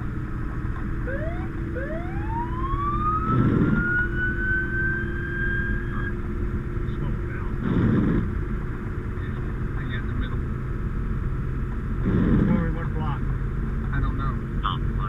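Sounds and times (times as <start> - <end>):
vehicle drone: 0.0 - 15.0
emergency vehicle siren: 0.9 - 6.3.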